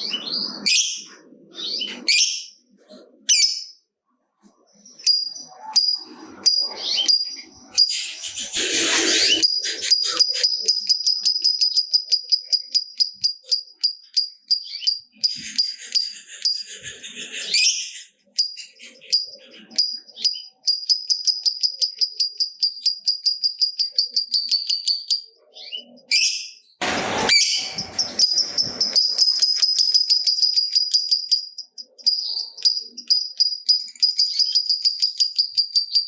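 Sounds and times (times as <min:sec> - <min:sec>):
lovebird chattering: 0:05.0 - 0:25.2
short loud burst of noise: 0:26.8 - 0:29.0.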